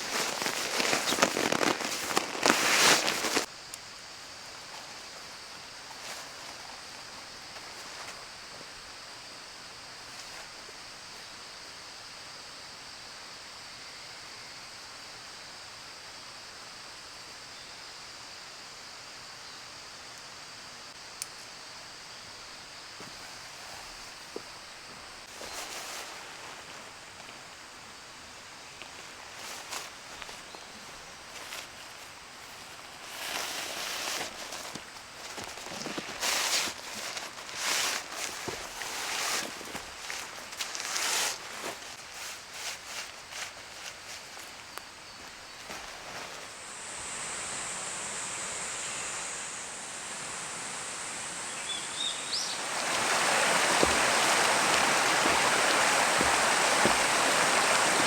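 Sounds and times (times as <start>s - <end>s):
loud crackling and snapping: 0.0s - 3.5s
insect chirring: 0.0s - 9.3s, 26.9s - 58.0s
rustle: 0.0s - 58.0s.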